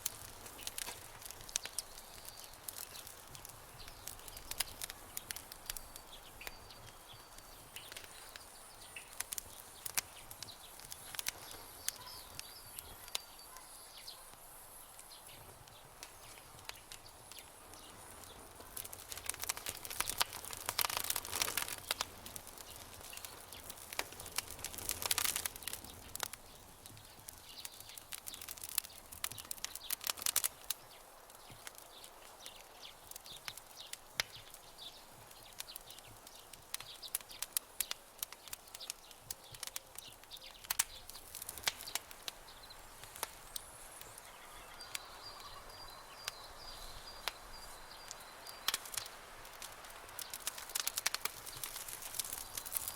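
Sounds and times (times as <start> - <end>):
campfire crackling and popping: 0.0 - 52.9
faint bird call: 44.1 - 47.8.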